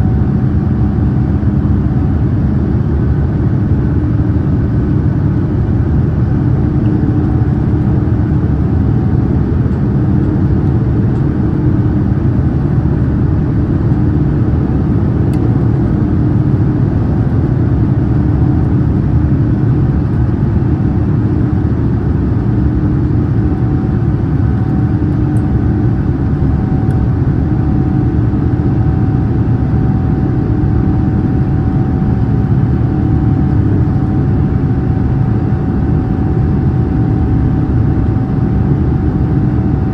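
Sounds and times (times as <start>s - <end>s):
aircraft cabin engine drone: 0.0s - 39.9s
low hum: 0.0s - 39.9s.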